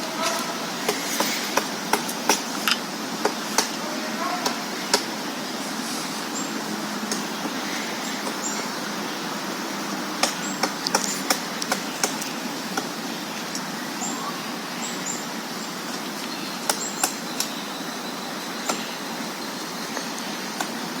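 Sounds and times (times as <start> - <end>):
steady background noise: 0.0 - 21.0
woodpecker tapping on tree: 0.8 - 3.8, 10.2 - 13.0.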